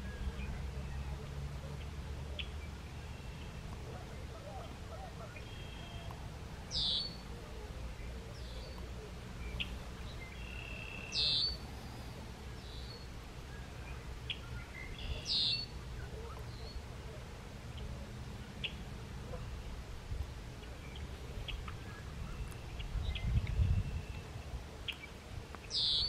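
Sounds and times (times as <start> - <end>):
faint bird chirps: 0.0 - 11.7, 12.4 - 19.5
blackbird song with falling trill: 4.6 - 7.2, 8.0 - 11.6, 12.6 - 16.9, 20.6 - 26.0.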